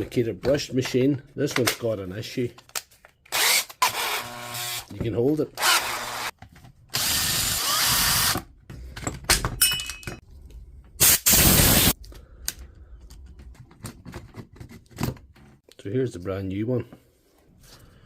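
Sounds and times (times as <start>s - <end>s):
cordless drill motor running: 3.3s - 4.9s, 5.6s - 6.3s, 7.0s - 8.4s.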